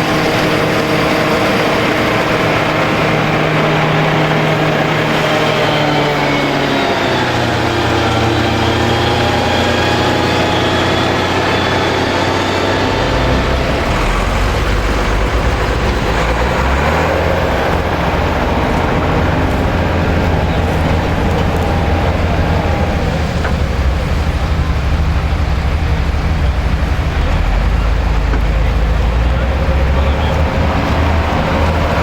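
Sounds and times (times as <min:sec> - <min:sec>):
diesel tractor engine running: 0:00.0 - 0:32.0
harvesting machinery clatter: 0:00.0 - 0:32.0.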